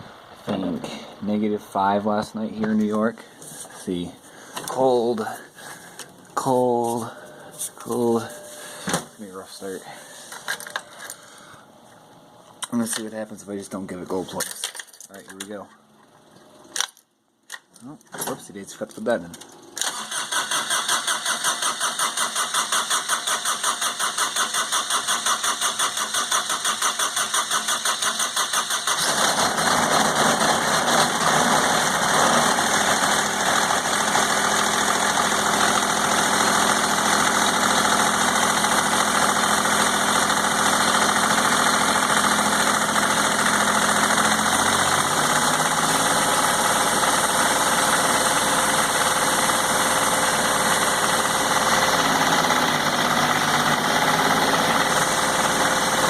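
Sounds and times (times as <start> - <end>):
diesel engine cranking on starter: 19.8 - 56.0
diesel engine running with clatter: 20.5 - 56.0.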